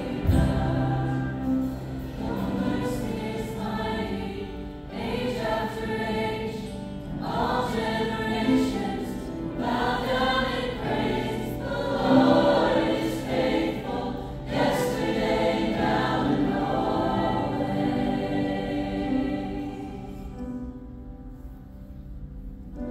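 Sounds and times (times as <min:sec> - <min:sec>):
choir singing a gospel song: 0:00.0 - 0:20.7
low steady accompaniment: 0:00.0 - 0:22.9.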